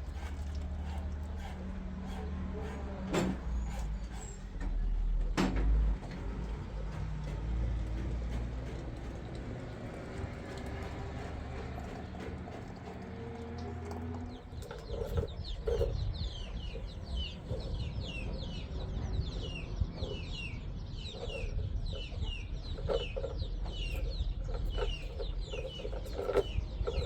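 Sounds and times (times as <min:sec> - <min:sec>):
birds chirping: 0:12.0 - 0:27.0.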